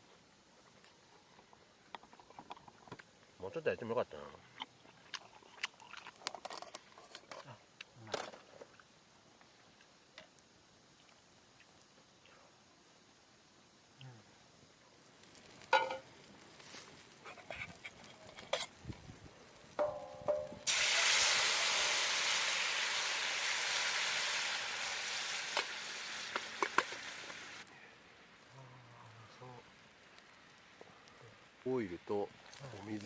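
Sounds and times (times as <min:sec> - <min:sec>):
food sizzling in frying pan: 0:14.6 - 0:28.4.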